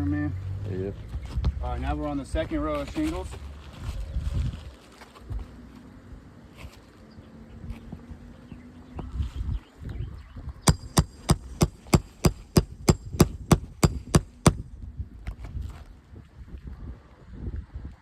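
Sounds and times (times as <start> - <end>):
hammer striking metal tool: 10.7 - 14.6.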